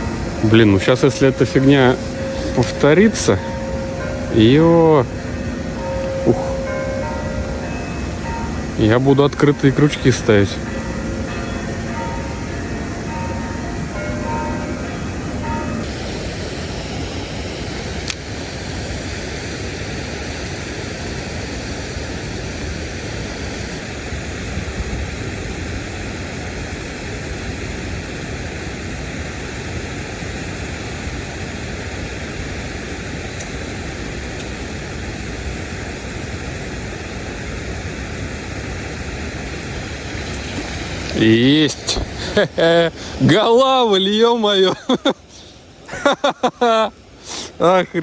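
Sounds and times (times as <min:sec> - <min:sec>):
water rushing through dam: 0:00.0 - 0:48.0.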